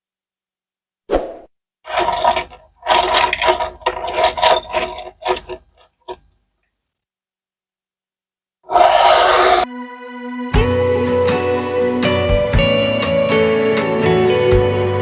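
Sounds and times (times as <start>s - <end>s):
ratchet-like mechanical clicking: 1.9s - 6.3s.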